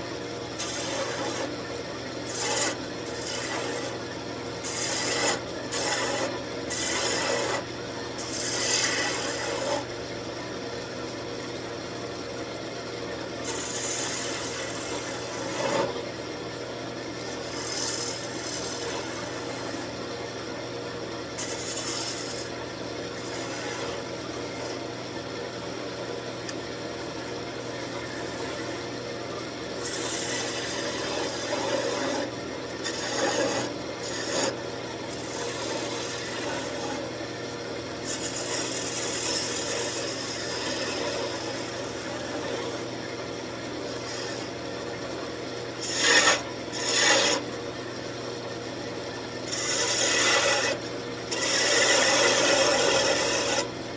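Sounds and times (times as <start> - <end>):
turning tool scraping wood: 0.5 - 1.6, 2.2 - 9.9, 13.4 - 16.0, 17.2 - 20.0, 21.4 - 24.9, 29.8 - 37.2, 38.0 - 42.9, 43.8 - 44.8, 45.7 - 47.5, 49.4 - 53.8
wood lathe humming: 0.6 - 1.5, 2.2 - 9.8, 13.4 - 16.0, 29.7 - 37.2, 38.0 - 42.9, 43.8 - 47.4, 49.3 - 53.9.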